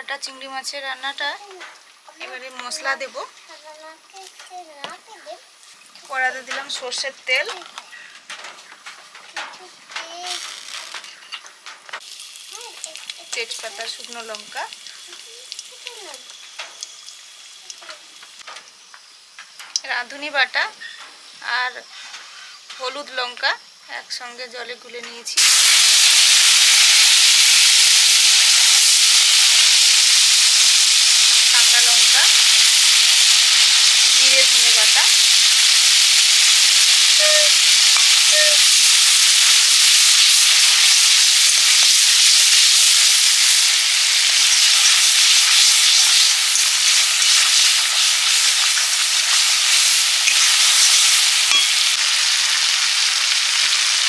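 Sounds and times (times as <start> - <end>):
spice paste sizzling in oil: 0.0 - 54.0.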